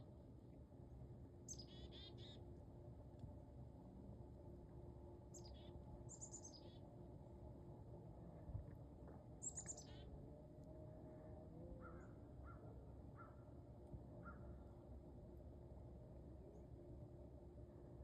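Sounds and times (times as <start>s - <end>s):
low background hum: 0.0s - 18.0s
songbird singing faintly: 1.4s - 2.5s, 5.0s - 14.7s.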